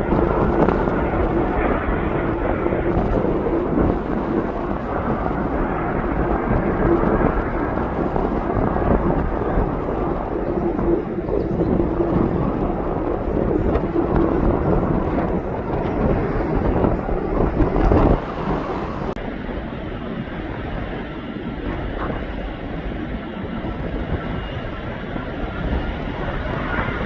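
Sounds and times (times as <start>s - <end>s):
aircraft engine rumble: 0.0s - 27.0s
wind buffeting microphone: 0.0s - 27.0s.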